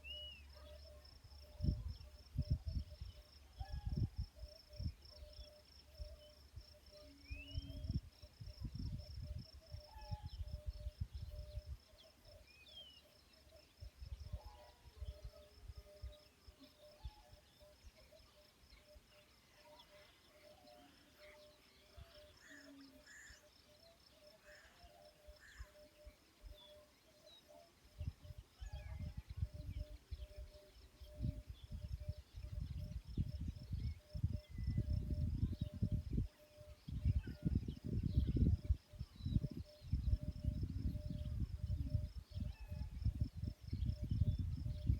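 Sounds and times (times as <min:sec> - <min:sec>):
crickets trilling: 0:00.0 - 0:44.9
lower pulsing insect call: 0:00.0 - 0:44.9
wind rumble on microphone: 0:01.3 - 0:12.0, 0:28.0 - 0:44.9.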